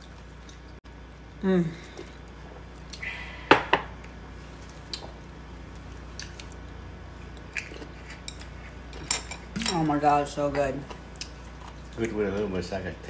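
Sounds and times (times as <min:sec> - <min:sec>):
low room hum: 0:00.0 - 0:13.0
chewing food: 0:04.0 - 0:09.6, 0:10.8 - 0:12.7.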